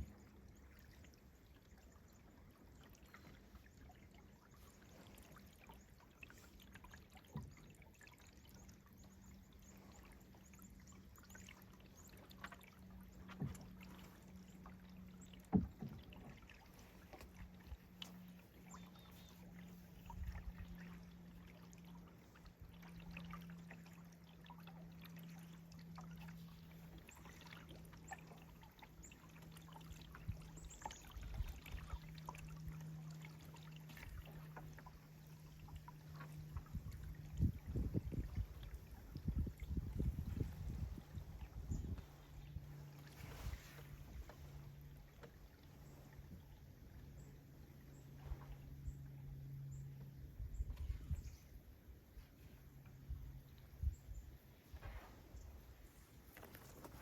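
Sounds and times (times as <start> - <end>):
paddles in water: 0.0 - 57.0
steady low hum: 0.0 - 57.0
paddle knocking on hull: 15.4 - 16.4.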